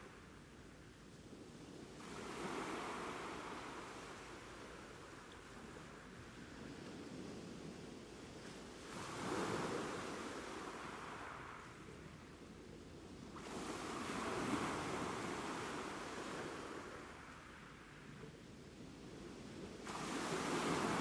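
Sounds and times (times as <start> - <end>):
ocean waves breaking on shore: 2.0 - 7.4, 8.7 - 12.4, 13.3 - 18.2, 19.8 - 21.0.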